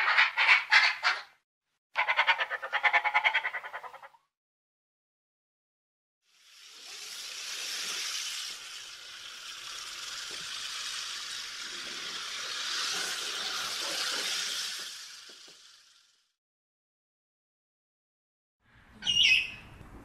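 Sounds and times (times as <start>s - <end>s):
porcupine quills rattling: 6.6s - 16.0s.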